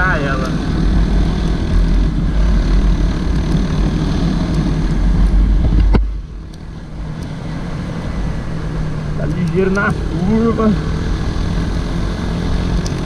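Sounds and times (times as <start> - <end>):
motorcycle engine: 0.0 - 13.0
wind rumble: 0.0 - 13.0.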